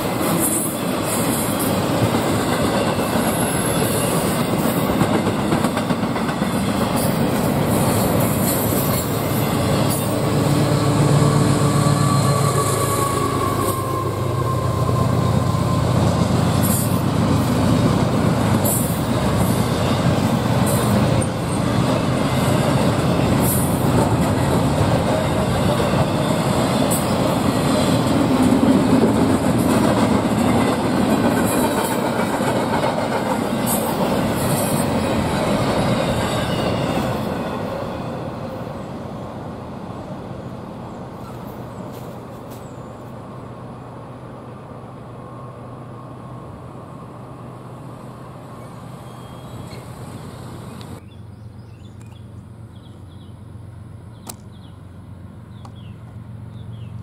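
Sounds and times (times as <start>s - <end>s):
freight train cars rolling: 0.0s - 43.7s.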